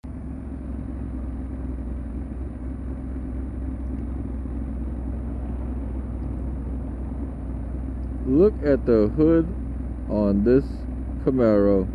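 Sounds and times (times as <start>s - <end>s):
vehicle engine running steadily: 0.0s - 11.9s.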